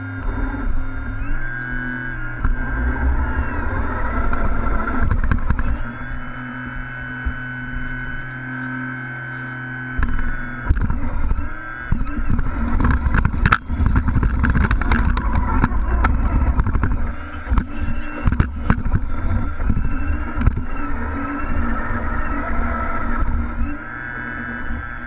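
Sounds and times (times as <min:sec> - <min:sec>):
toy truck engine droning: 0:00.0 - 0:25.0
short clicks and knocks: 0:03.5 - 0:08.2, 0:09.9 - 0:25.0.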